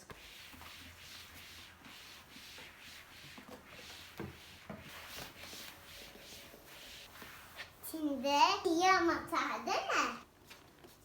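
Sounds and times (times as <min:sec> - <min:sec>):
rhythmic rubbing strokes: 0:00.0 - 0:08.2.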